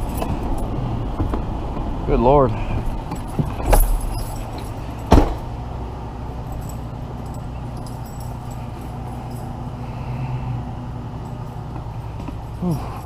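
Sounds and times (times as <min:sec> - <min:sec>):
truck engine running: 0:00.0 - 0:13.0
sharp thump: 0:05.1 - 0:05.5.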